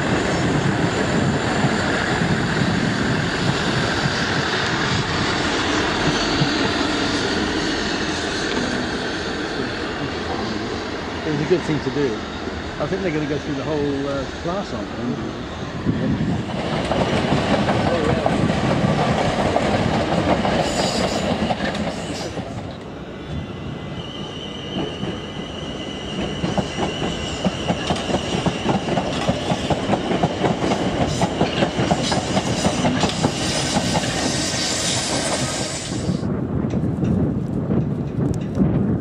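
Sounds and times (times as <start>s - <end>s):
trains passing close by: 0.0s - 39.0s
high wheel squeal: 23.3s - 28.8s.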